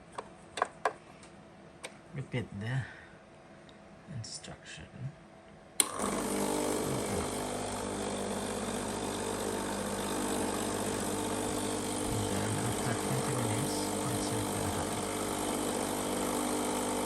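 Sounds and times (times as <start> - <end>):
espresso machine pump humming: 5.8 - 17.0.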